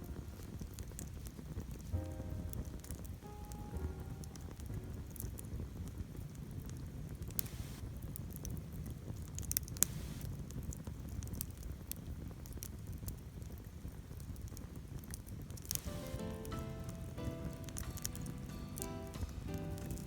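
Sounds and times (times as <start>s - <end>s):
campfire crackling and popping: 0.0s - 20.0s
background music: 1.8s - 5.6s, 15.7s - 20.0s.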